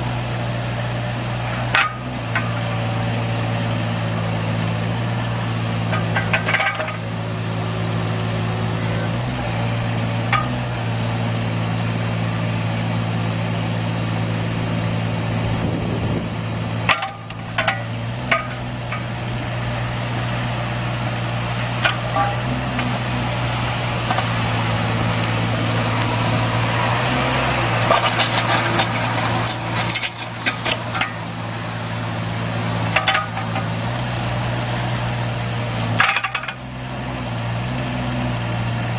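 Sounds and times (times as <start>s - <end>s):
excavator diesel engine running: 0.0s - 38.9s
metallic clanks and knocks: 1.6s - 2.6s, 5.9s - 7.1s, 10.3s - 10.7s, 16.9s - 19.2s, 21.8s - 23.0s, 24.0s - 24.3s, 27.8s - 31.3s, 32.9s - 33.9s, 36.0s - 36.6s.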